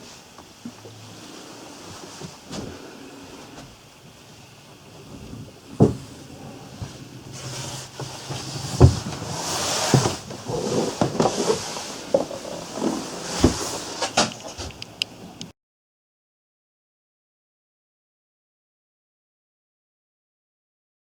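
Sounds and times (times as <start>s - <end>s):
hissing background: 0.0s - 15.5s
sharp knocks and bumps: 5.7s - 6.2s.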